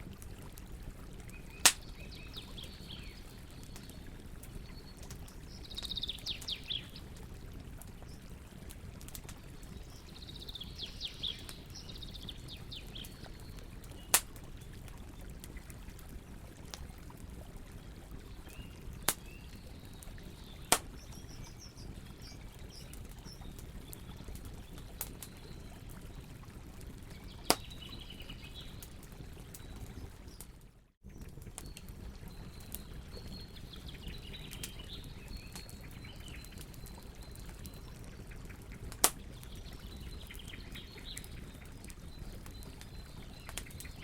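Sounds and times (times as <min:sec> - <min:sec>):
campfire burning: 0:00.0 - 0:44.0
birds chirping: 0:01.3 - 0:07.1
wood crackling pops: 0:01.6 - 0:01.9, 0:13.9 - 0:14.5, 0:19.0 - 0:19.3, 0:20.7 - 0:21.1, 0:27.5 - 0:27.8, 0:38.9 - 0:39.3.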